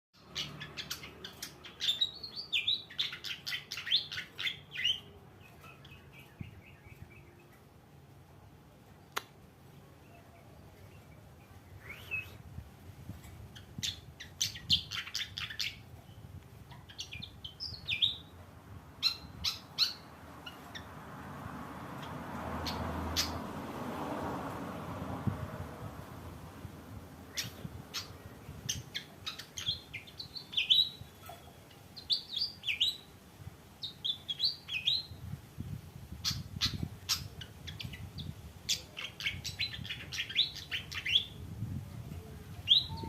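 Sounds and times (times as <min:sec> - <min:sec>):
flycatcher chirping song: 0:42.7 - 0:43.0.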